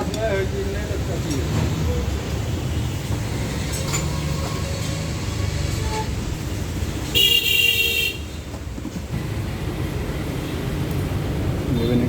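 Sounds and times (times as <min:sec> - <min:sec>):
vehicle horn: 0:07.1 - 0:08.3.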